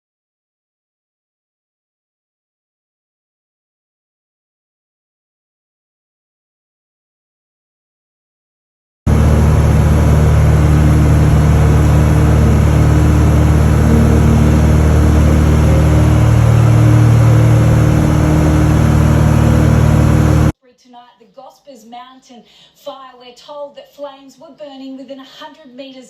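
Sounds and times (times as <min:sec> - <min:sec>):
engine-like rumble with low hum: 0:09.1 - 0:20.5.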